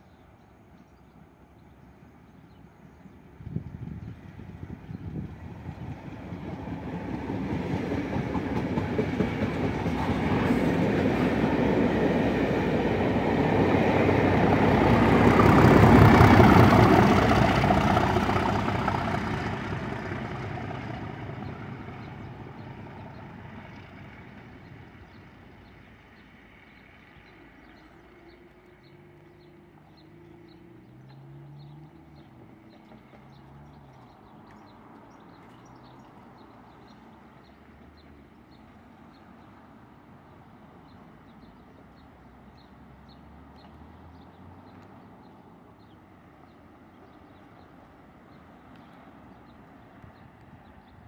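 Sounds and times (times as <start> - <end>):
diesel locomotive engine: 0.0 - 51.0
train passing at speed: 0.0 - 51.0
wheel-on-rail noise: 4.0 - 39.6.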